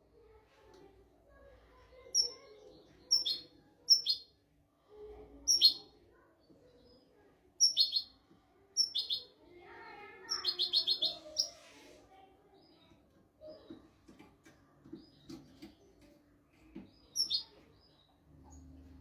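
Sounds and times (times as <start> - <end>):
bird singing high chirps: 3.0 - 4.3, 5.5 - 5.9, 7.6 - 8.1, 8.8 - 9.3, 10.3 - 11.6, 17.0 - 18.6.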